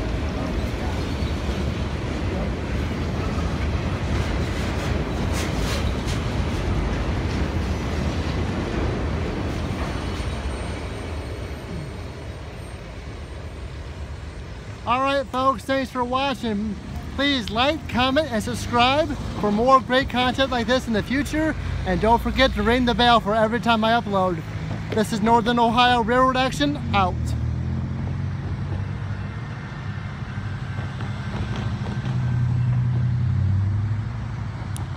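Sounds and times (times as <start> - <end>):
low steady engine drone: 0.0 - 5.3
train wheels rumbling on rail: 0.0 - 34.9.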